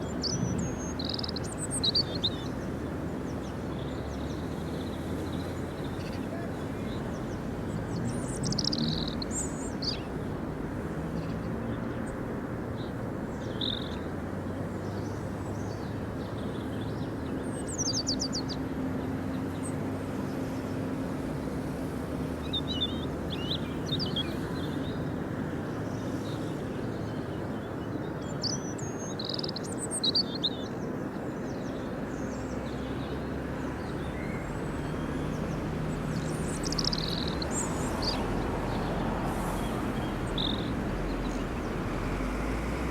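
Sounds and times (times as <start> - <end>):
bird chirps: 36.1 - 38.3.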